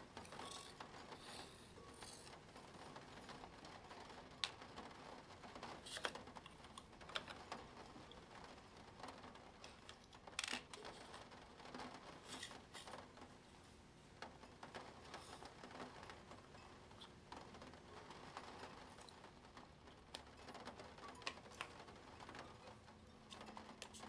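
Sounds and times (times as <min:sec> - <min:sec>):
plastic pieces clicking and tapping: 0:04.3 - 0:05.0, 0:05.7 - 0:08.2, 0:09.0 - 0:13.2, 0:18.4 - 0:24.0.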